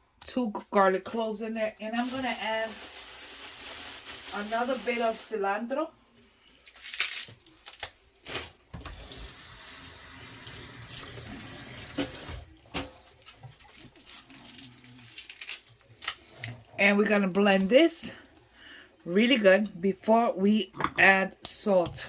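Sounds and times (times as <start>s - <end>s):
kitchen tap running: 8.8s - 14.1s.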